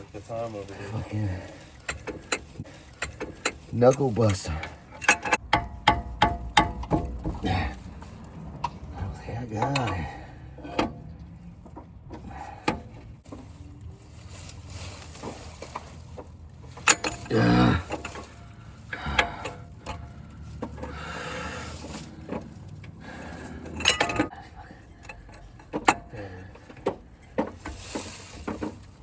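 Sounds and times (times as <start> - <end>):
hand tools clinking on metal: 0.2 - 11.0, 16.7 - 28.9
person grunting: 7.4 - 7.8, 17.3 - 18.0, 19.0 - 19.5.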